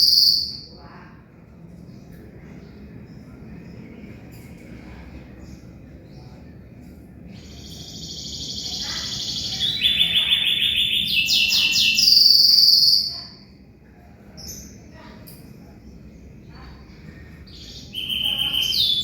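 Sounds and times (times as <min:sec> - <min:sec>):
canary trilling: 0:00.0 - 0:00.8, 0:07.3 - 0:13.5, 0:17.5 - 0:19.0.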